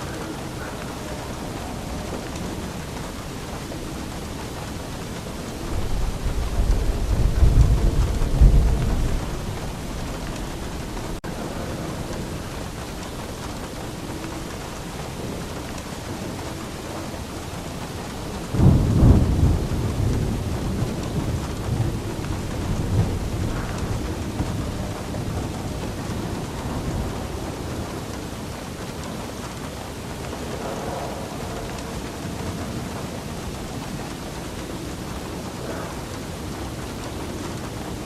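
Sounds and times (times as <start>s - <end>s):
heavy rain: 0.0s - 38.0s
thunder rumbling: 0.0s - 38.0s.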